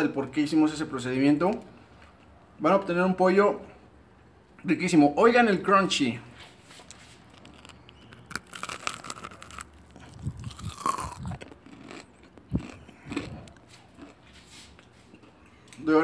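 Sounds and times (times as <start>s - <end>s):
crispy coating crunching: 6.4s - 14.9s
chewing: 6.8s - 15.8s.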